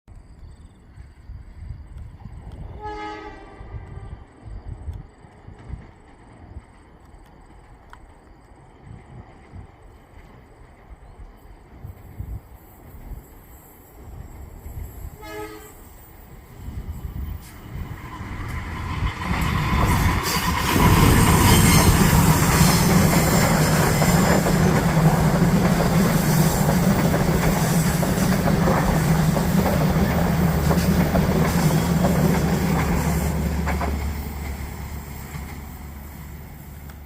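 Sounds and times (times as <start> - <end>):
train wheels clattering on rails: 16.6 - 37.0.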